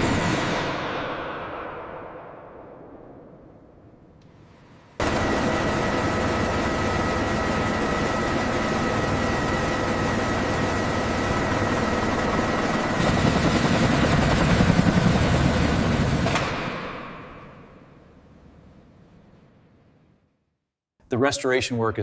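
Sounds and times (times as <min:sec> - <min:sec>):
helicopter turbines and rotor: 0:00.0 - 0:03.3, 0:05.0 - 0:18.6.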